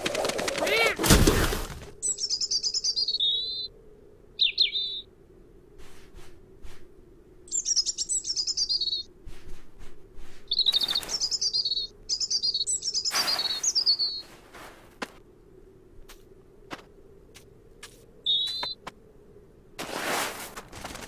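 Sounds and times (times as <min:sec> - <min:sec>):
small bird chirping: 0:02.0 - 0:03.7, 0:04.4 - 0:05.1, 0:07.5 - 0:09.1, 0:10.2 - 0:14.5, 0:18.2 - 0:18.8.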